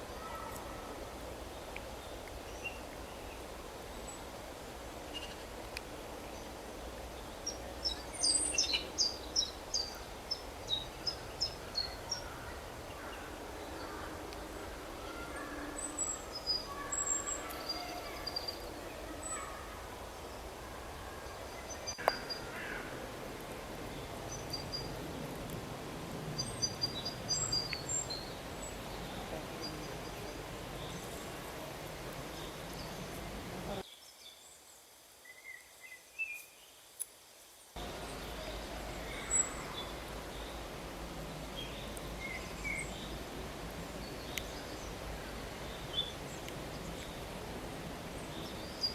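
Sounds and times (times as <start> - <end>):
outdoor background hiss: 0.0 - 48.9
small birds chirping: 5.1 - 25.6, 26.2 - 34.6, 37.8 - 48.9.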